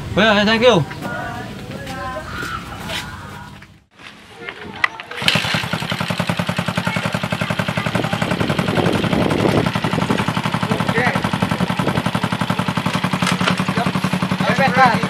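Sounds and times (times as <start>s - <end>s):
motorcycle engine idling: 4.9s - 15.0s.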